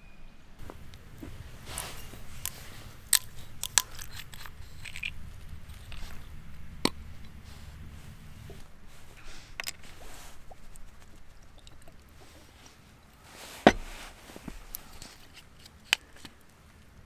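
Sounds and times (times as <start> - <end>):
sharp food crunches: 0.6 - 8.6
person chewing crunchy food: 0.6 - 10.6.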